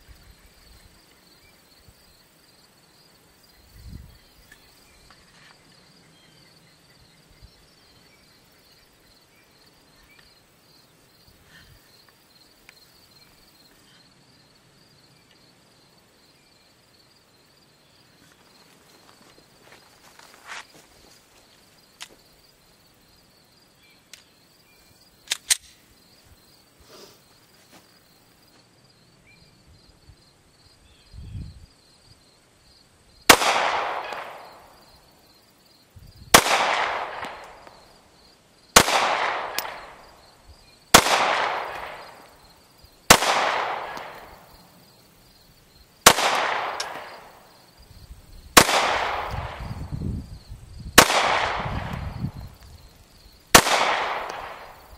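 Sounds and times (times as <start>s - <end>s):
light handling clicks: 25.2s - 25.8s
pistol shots with echo: 33.3s - 34.7s, 36.3s - 37.8s, 38.8s - 40.1s, 40.9s - 42.3s, 43.1s - 44.5s, 46.0s - 47.5s, 48.6s - 49.9s, 51.0s - 52.2s, 53.5s - 54.8s.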